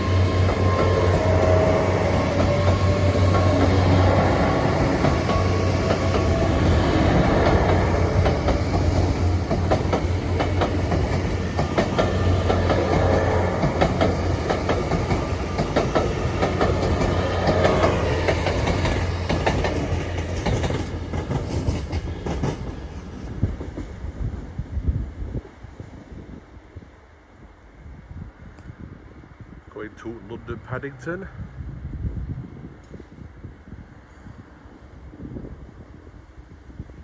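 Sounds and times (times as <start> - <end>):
train wheels clattering: 0.0 - 24.0
train engine drone: 0.0 - 26.2.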